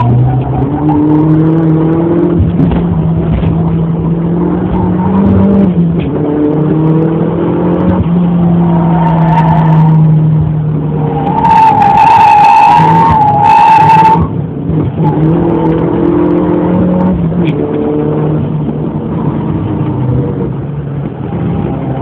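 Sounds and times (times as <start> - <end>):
turbocharged car engine revving: 0.0 - 22.0.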